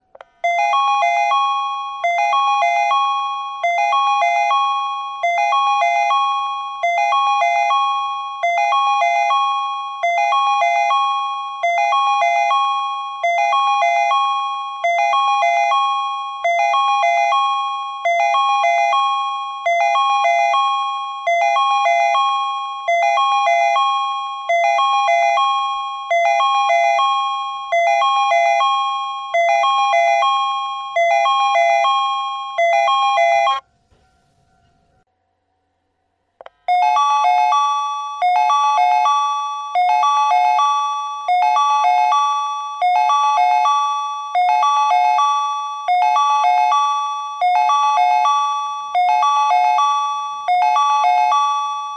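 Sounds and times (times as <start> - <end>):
electronic warning chime: 0.4 - 34.7.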